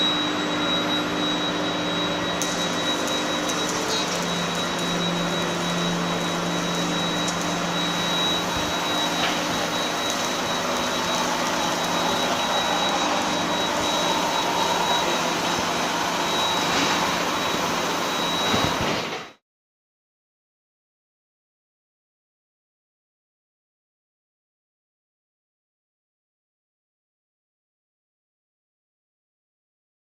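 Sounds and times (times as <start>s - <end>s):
low machine hum: 0.0s - 18.7s
steady high-pitched tone: 0.0s - 19.0s.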